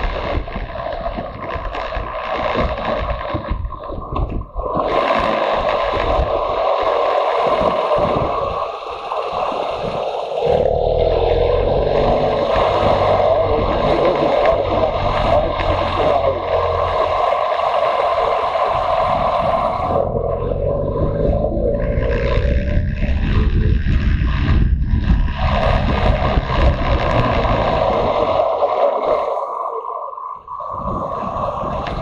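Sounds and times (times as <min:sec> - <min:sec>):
wind rushing over microphone: 0:00.0 - 0:32.0.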